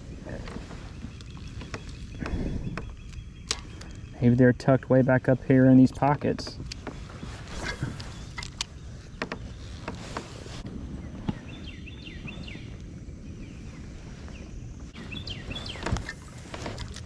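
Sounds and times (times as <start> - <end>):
bird chirping: 0.0 - 5.9, 15.0 - 16.2.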